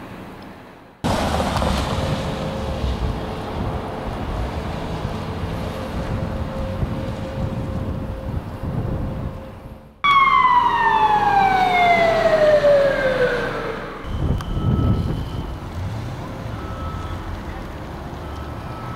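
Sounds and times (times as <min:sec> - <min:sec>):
vehicle and traffic rumble: 0:00.0 - 0:18.9
siren falling wail: 0:01.9 - 0:15.6.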